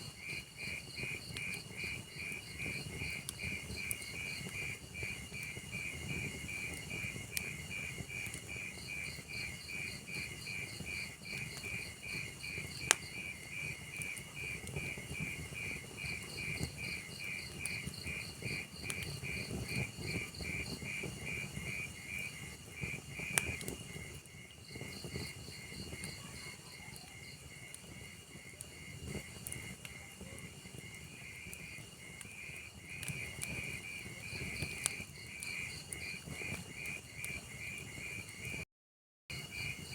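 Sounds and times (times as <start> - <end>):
wood fire crackling and popping: 0.0 - 38.6
cricket chirping: 0.1 - 38.5.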